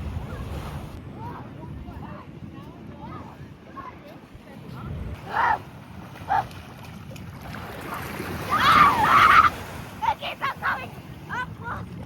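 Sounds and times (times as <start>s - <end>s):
waves breaking: 0.0s - 12.0s
wind buffeting microphone: 0.0s - 12.0s
children shouting: 8.4s - 10.9s.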